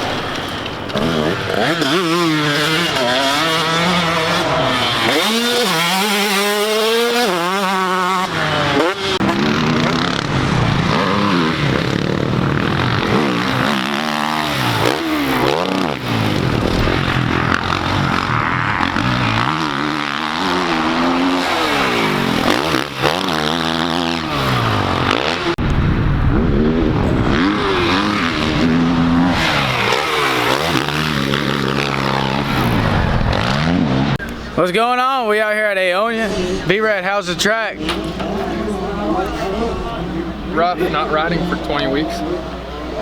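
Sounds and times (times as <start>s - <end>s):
dirt bike engines revving: 0.0s - 43.0s.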